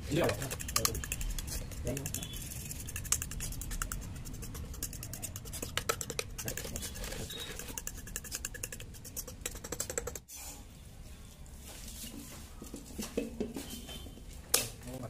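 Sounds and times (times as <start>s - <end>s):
fork scraping a ceramic plate: 0.2s - 9.4s.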